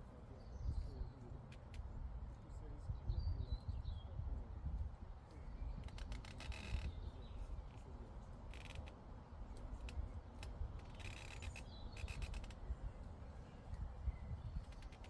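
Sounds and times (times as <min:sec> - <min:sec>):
wind rumble on microphone: 0:00.6 - 0:08.0, 0:11.6 - 0:15.0
faint birdsong: 0:10.9 - 0:15.0.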